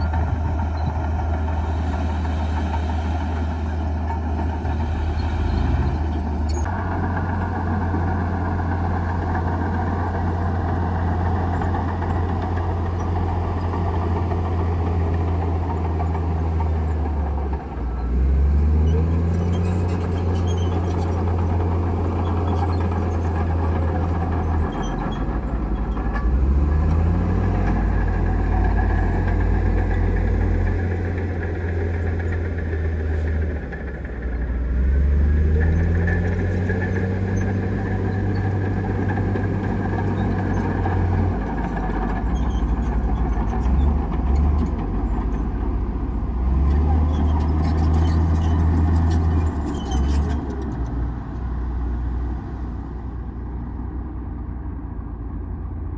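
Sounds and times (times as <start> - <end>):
bulldozer diesel engine: 0.0 - 55.9.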